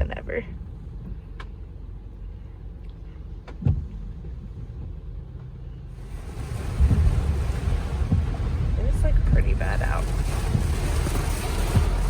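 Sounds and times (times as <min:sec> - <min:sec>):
car cabin rumble: 0:00.0 - 0:12.0
dull thump: 0:03.5 - 0:04.0, 0:06.1 - 0:12.0.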